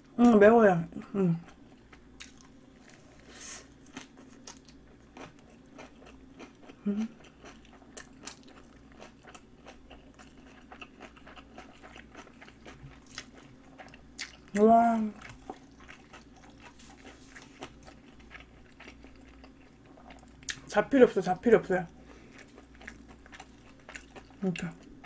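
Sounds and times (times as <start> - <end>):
crunchy chewing: 1.4 - 20.7, 21.9 - 25.0
person humming: 6.8 - 7.1.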